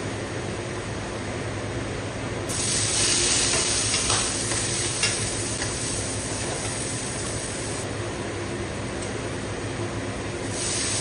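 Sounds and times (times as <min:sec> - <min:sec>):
food sizzling in hot oil: 0:02.5 - 0:07.8, 0:10.5 - 0:11.0.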